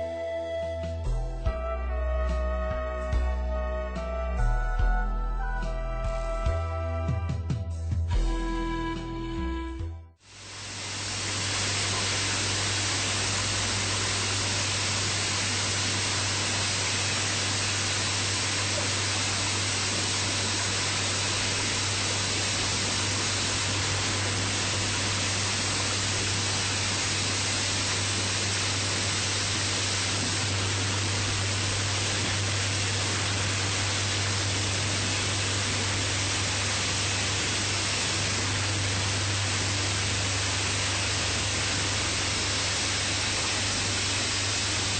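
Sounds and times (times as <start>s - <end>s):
water rushing through filter: 10.2s - 44.9s.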